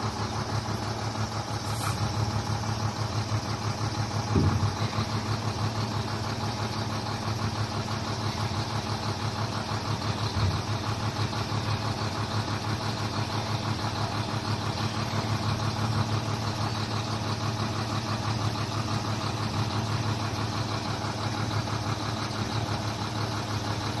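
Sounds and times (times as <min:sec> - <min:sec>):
diesel truck engine idling: 0:00.0 - 0:24.0
brief low knock: 0:04.3 - 0:04.9.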